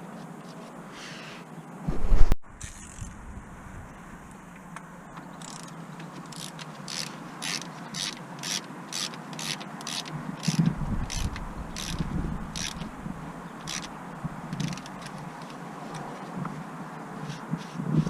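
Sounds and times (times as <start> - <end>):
hand ratchet clicking: 5.4 - 12.9, 13.6 - 13.9, 14.5 - 16.1.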